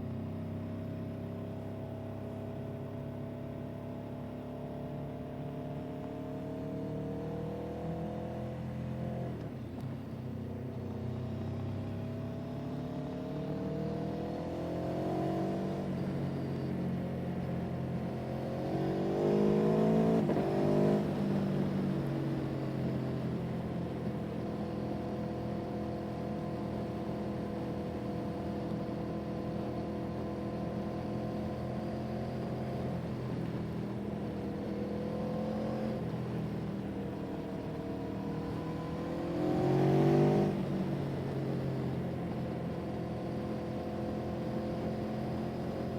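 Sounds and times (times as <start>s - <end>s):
vehicle engine accelerating: 10.8s - 27.7s, 29.0s - 45.9s.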